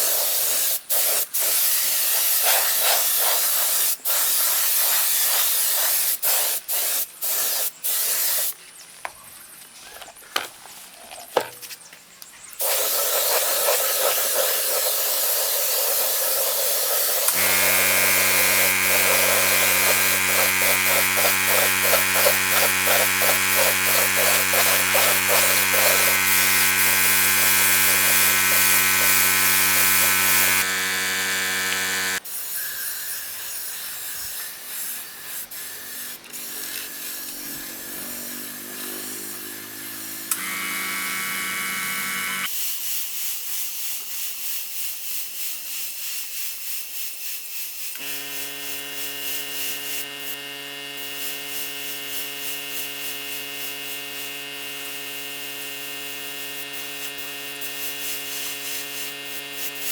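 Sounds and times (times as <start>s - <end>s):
small electric motors buzzing: 12.6s - 42.5s, 47.8s - 59.9s.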